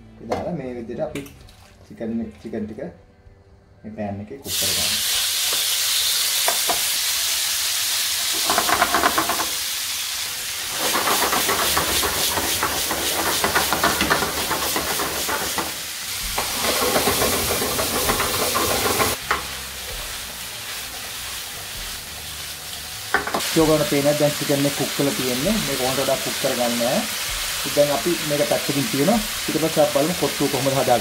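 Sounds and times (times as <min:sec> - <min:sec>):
chicken sizzling in hot oil: 0:04.5 - 0:31.0
spatula stirring in pan: 0:10.9 - 0:19.4.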